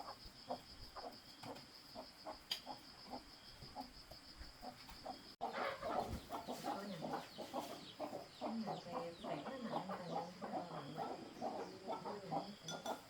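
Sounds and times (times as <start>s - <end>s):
short overlapping bird calls: 4.6s - 13.0s.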